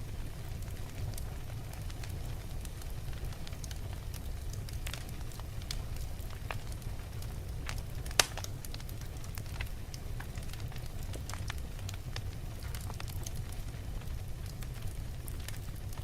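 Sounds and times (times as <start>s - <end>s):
wood fire crackling: 0.0s - 16.0s
loud sharp pop of fire: 8.0s - 8.8s.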